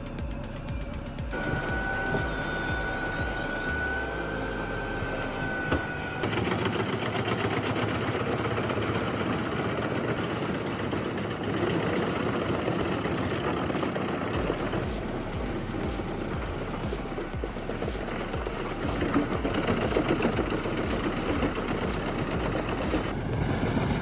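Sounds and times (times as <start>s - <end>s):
high whine: 0.0s - 6.2s, 14.3s - 24.0s
machine rattling: 6.2s - 24.0s.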